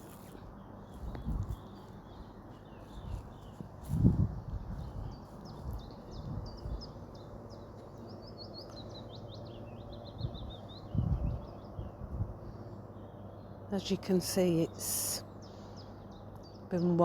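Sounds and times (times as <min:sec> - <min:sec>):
songbird twittering: 0:00.1 - 0:13.7.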